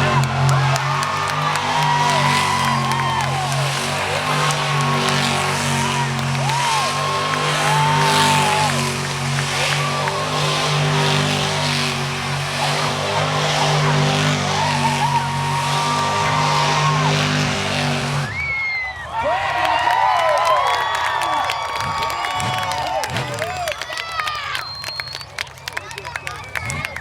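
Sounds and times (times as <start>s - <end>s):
truck engine running hard: 0.0s - 18.5s
high squealing glides: 0.0s - 19.1s.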